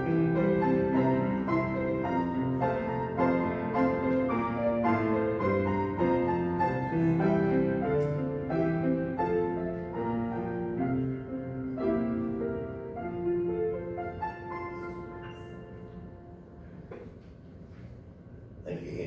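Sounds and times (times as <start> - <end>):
solo piano playing: 0.0 - 16.9.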